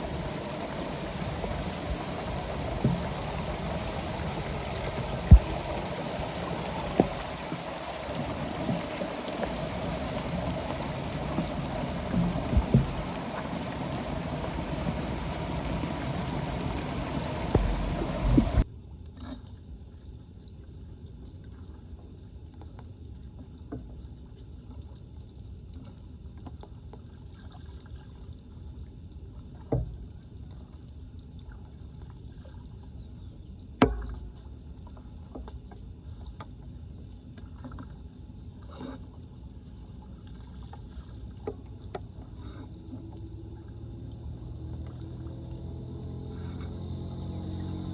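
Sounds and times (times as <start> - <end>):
water trickling: 0.0 - 18.6
floodwater flowing at a drain: 0.0 - 18.7, 40.0 - 47.9.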